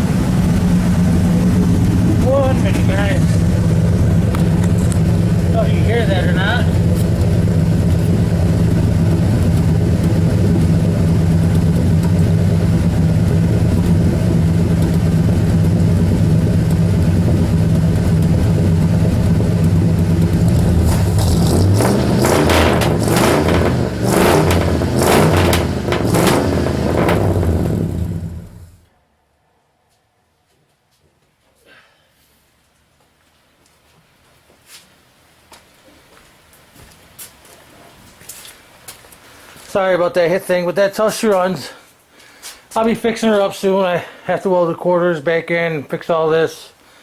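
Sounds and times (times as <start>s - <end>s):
loud irregular engine clattering: 0.0s - 28.8s
car engine idling: 0.0s - 28.9s.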